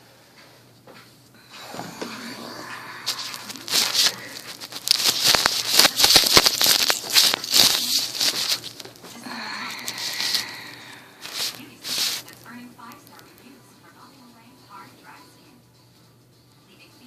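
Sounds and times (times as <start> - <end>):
plastic ball toy rattling: 3.2 - 9.0.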